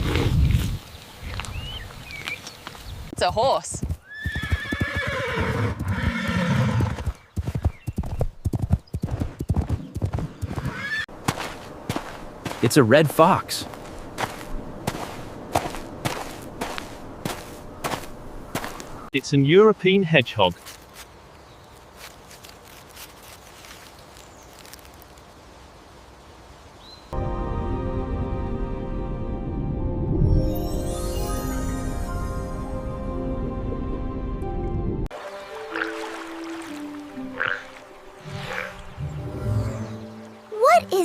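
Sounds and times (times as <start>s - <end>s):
outdoor ambience: 0.0s - 27.3s
hooves clip-clopping: 0.5s - 19.0s
horse whinnying: 4.0s - 7.0s, 10.6s - 11.1s.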